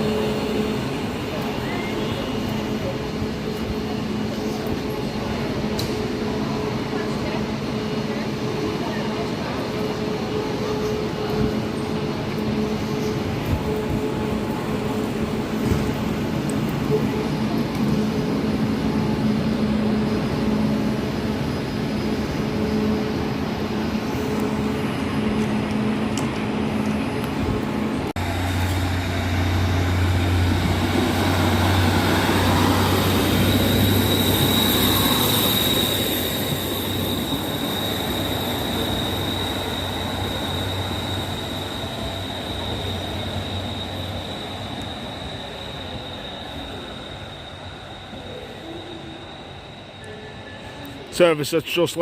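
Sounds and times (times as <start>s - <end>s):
train droning hum: 0.0s - 51.8s
train rumbling along platform: 0.0s - 52.0s
high wheel squeal: 28.5s - 51.4s.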